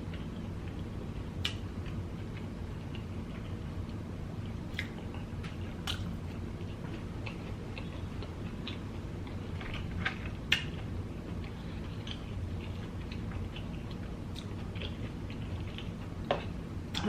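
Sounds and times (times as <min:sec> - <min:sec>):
chewing food: 0:00.0 - 0:17.0.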